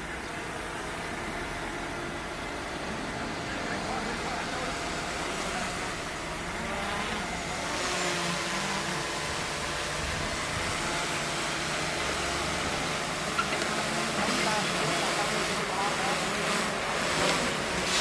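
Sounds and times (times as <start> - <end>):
earth-moving machinery motor running: 0.0 - 18.0.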